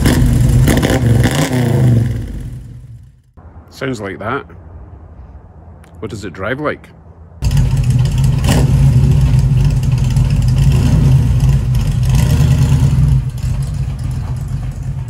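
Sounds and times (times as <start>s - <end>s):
car engine driving off: 0.0s - 3.2s, 7.4s - 15.0s.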